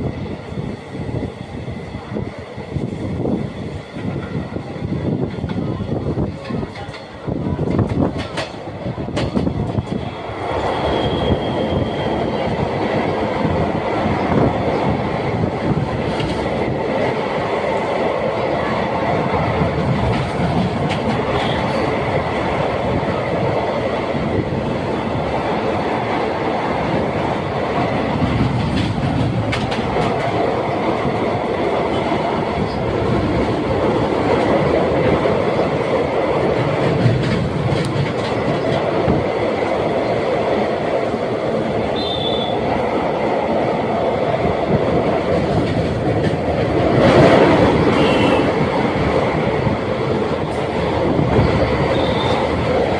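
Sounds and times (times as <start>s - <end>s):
train rumbling over bridge: 0.0s - 52.9s
wheels clacking over rail joints: 6.3s - 11.1s, 19.3s - 23.4s, 24.8s - 40.0s
high wheel squeals: 10.6s - 12.2s, 51.4s - 52.5s.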